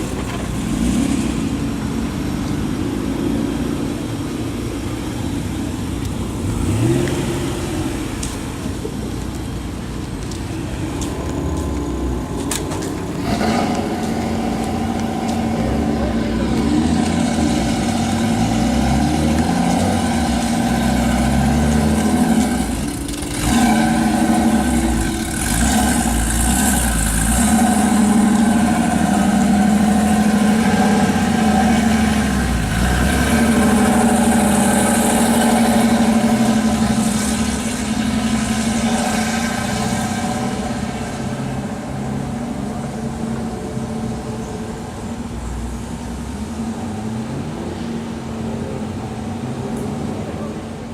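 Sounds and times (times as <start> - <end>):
car engines idling and revving: 0.0 - 50.9.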